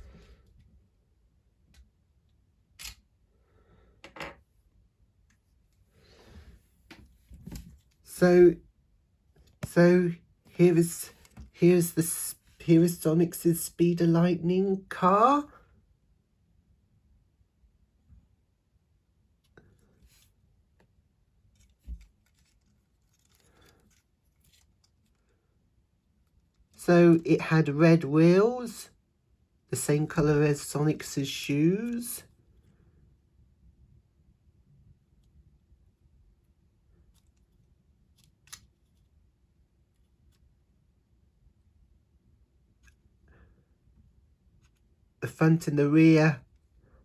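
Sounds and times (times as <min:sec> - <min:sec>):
soft rustling: 0:21.4 - 0:25.5
small plastic clicks: 0:37.1 - 0:39.0.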